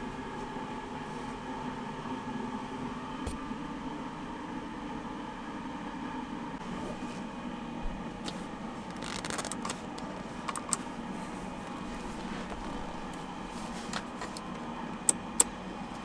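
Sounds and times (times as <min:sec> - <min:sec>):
light clicks and small rattles: 0:08.2 - 0:16.0
sharp clicks: 0:08.9 - 0:10.9, 0:14.0 - 0:15.6.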